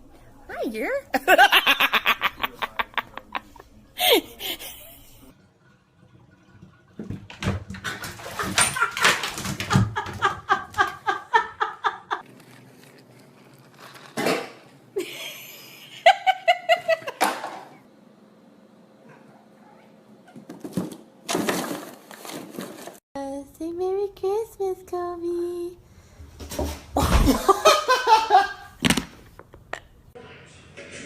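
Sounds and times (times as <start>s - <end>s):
person laughing: 1.2s - 5.3s, 8.3s - 12.2s, 15.0s - 17.2s, 27.0s - 28.7s.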